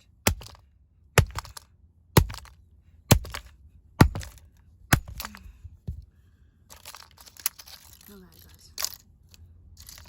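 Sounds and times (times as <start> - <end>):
axe smashing plastic toy: 0.3 - 5.5.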